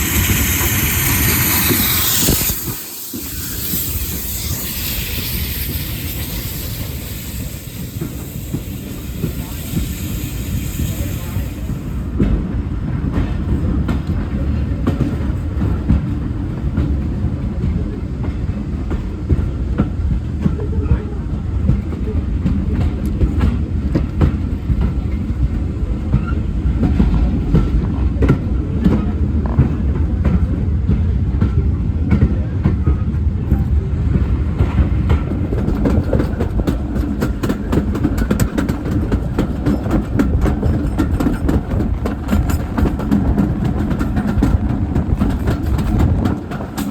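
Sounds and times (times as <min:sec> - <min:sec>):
train rumbling on track: 0:00.0 - 0:46.9
wheels clicking and knocking: 0:35.1 - 0:46.9.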